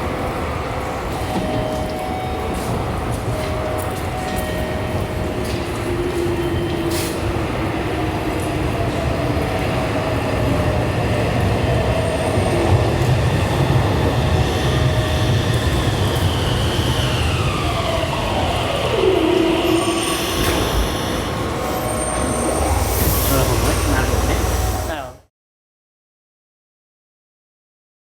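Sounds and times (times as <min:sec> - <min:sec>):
electric train wheels and motors: 0:00.0 - 0:25.2
train motor whine: 0:14.2 - 0:25.2.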